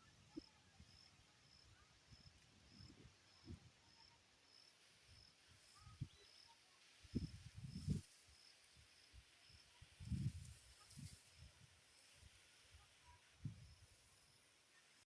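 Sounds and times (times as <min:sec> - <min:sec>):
cricket chirping: 0:00.3 - 0:06.6
wind buffeting microphone: 0:07.1 - 0:08.0, 0:10.0 - 0:11.6.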